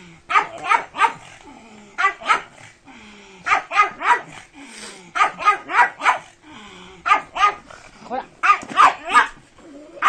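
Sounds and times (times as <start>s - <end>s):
dog barking in short yaps: 8.4s - 9.3s.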